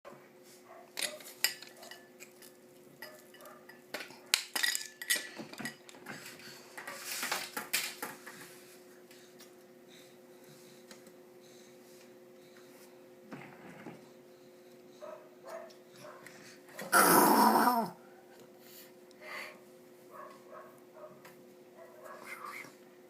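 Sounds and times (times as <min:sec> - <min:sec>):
dishes and cutlery clattering: 0:01.0 - 0:06.3.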